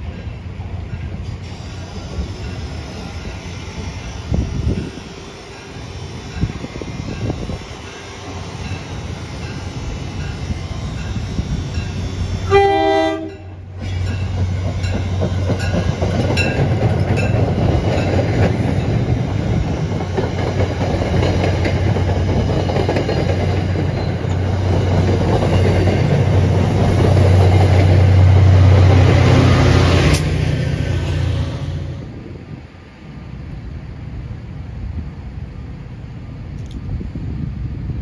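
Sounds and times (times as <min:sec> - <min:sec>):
train wheels clicking and rumbling: 0:00.0 - 0:12.5, 0:13.3 - 0:31.7
diesel locomotive engine: 0:00.0 - 0:38.0
train horn blast: 0:12.4 - 0:13.7.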